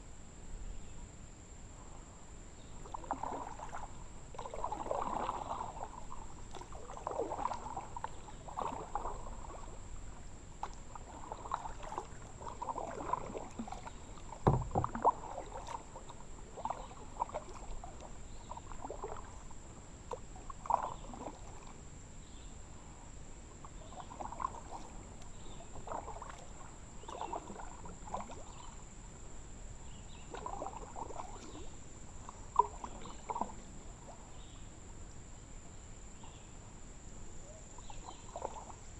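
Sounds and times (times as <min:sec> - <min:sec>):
kayak paddle splashing in water: 0:02.7 - 0:35.1, 0:37.4 - 0:38.9
low knock: 0:14.4 - 0:15.0.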